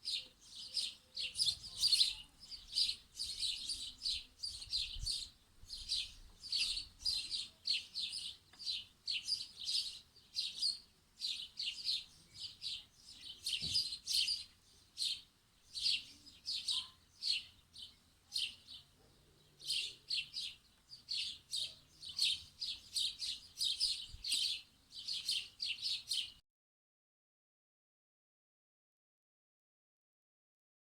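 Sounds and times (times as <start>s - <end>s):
small birds chirping: 0.0s - 26.4s.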